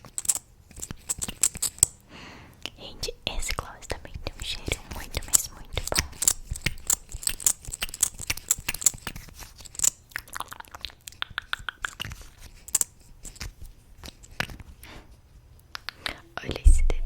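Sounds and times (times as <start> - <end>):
wet mouth clicks and smacks: 10.1 - 12.7.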